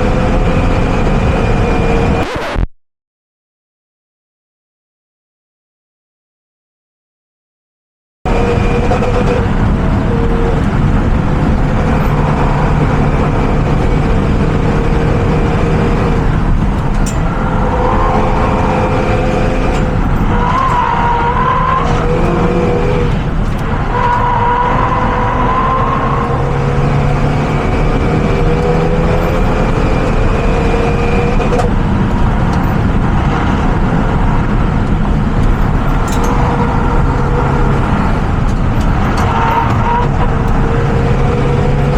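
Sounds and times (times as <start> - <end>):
car engine revving: 0.0 - 2.4, 8.3 - 41.9
road and wind noise: 0.0 - 2.7, 8.3 - 41.9.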